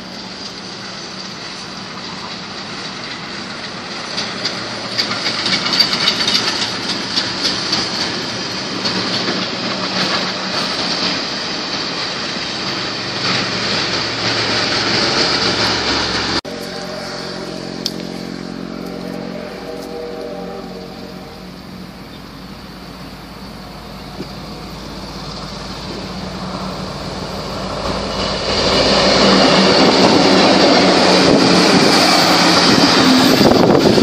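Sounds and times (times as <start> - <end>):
train coaches clattering over rails: 0.0 - 34.0.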